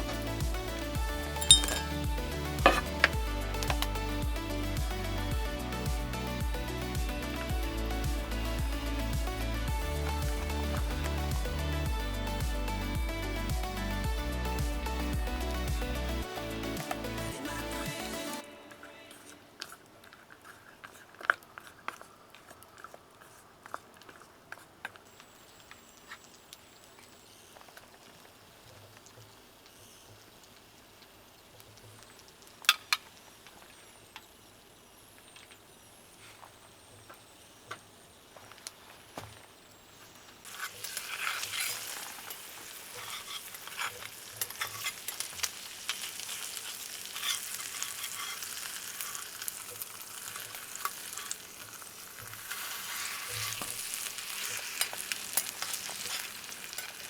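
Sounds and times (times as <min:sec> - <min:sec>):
food sizzling in a pan: 0:00.0 - 0:13.8, 0:25.0 - 0:57.0
cooking utensils clicking: 0:01.4 - 0:02.0.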